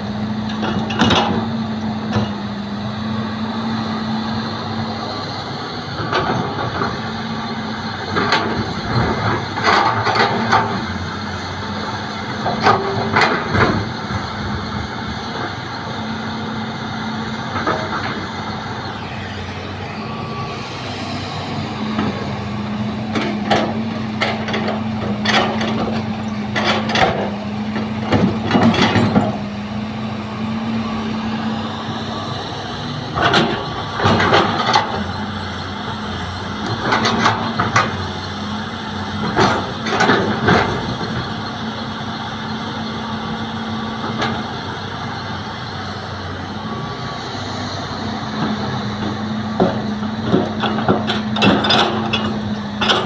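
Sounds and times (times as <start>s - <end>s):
diesel engine running: 0.0s - 53.0s
knocks and clatter: 48.4s - 53.0s.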